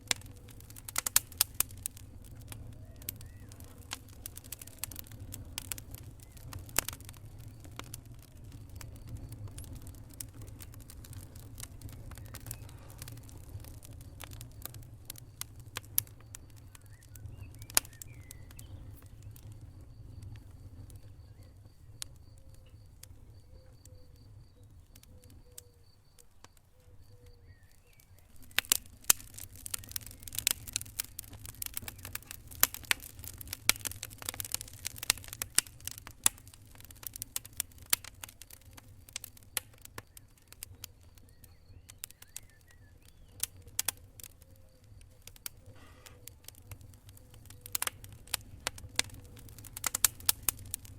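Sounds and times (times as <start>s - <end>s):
low rumble of burning: 0.0s - 50.9s
wood fire crackling and popping: 0.0s - 50.9s.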